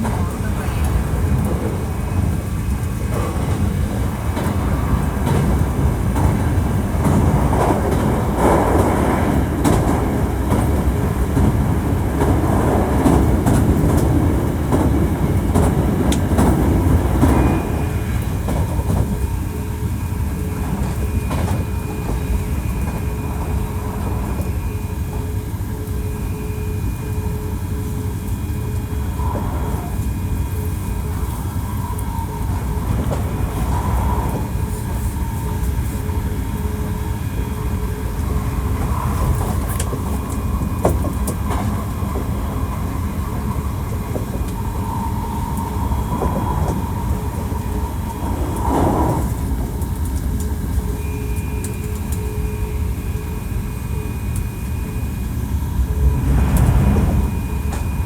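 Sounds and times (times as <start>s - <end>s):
train motor hum: 0.0s - 58.0s
train wheels rumbling on rails: 0.0s - 58.0s
high steady whine: 50.4s - 58.0s.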